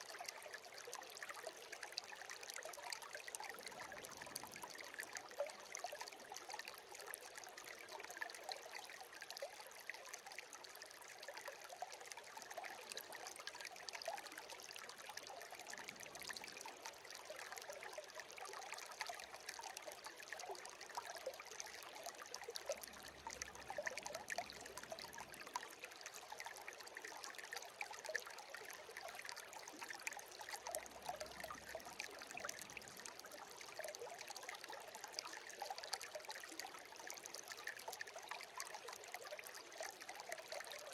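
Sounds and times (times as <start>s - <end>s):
stream babbling over stones: 12.2s - 40.9s.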